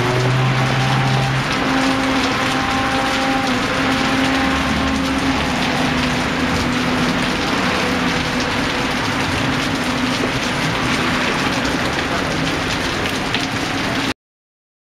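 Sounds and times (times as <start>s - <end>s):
rain falling: 0.0s - 14.2s.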